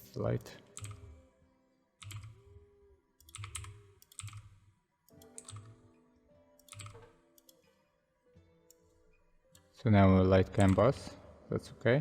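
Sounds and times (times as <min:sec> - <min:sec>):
faint background music: 0:00.0 - 0:12.0
computer keyboard keys clicking: 0:00.8 - 0:01.1, 0:02.0 - 0:02.4, 0:03.2 - 0:04.5, 0:05.1 - 0:05.8, 0:06.6 - 0:07.6.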